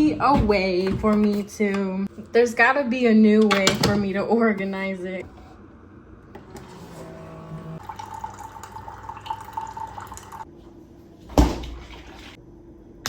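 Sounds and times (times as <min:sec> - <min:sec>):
coffee maker dispensing: 0:06.3 - 0:10.4.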